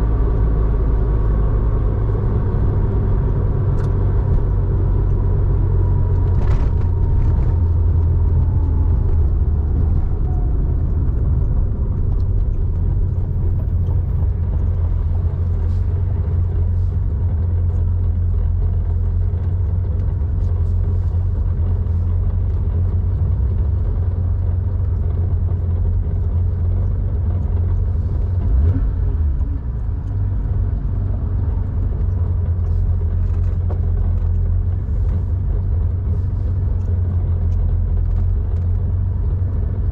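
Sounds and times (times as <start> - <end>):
car exhaust rumble: 0.0 - 39.9.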